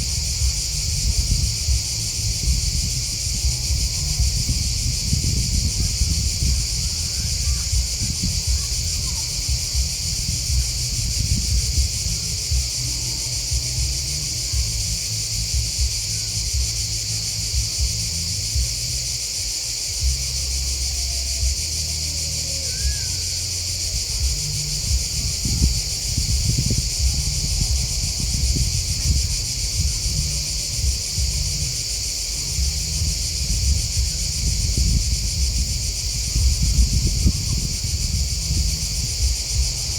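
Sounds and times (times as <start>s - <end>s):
crickets and grasshoppers chirping: 0.0s - 39.9s
low uneven rumble: 0.0s - 39.9s.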